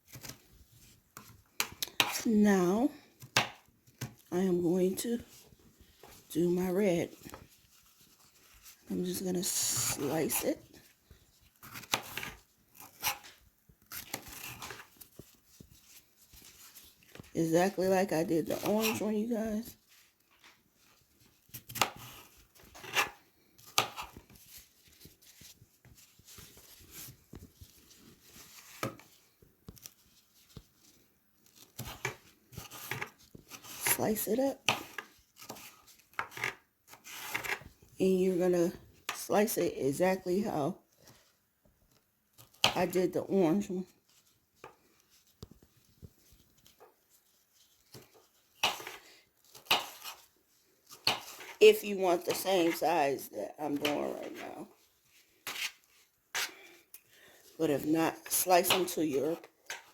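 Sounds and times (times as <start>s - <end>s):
rustling: 7.1s - 17.4s, 18.4s - 33.9s.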